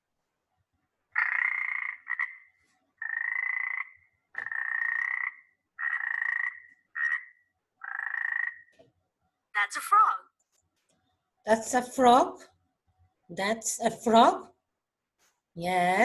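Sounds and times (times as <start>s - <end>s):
frog croaking: 1.1s - 8.8s.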